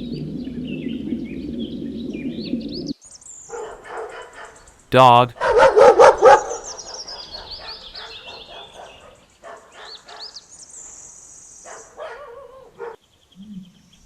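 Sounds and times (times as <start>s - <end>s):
dog barking: 3.5s - 4.6s, 5.4s - 6.6s, 7.2s - 10.3s, 11.7s - 13.0s.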